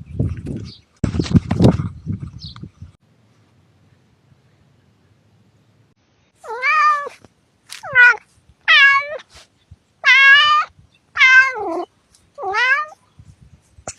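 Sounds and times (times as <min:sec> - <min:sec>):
cat meowing: 0:06.4 - 0:07.2, 0:07.8 - 0:09.3, 0:10.0 - 0:13.0.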